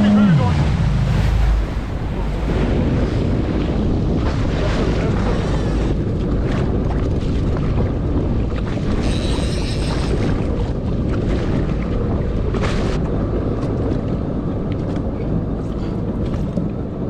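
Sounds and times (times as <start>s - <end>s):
water washing around boat: 0.0s - 17.0s
wind buffeting microphone: 0.0s - 17.0s.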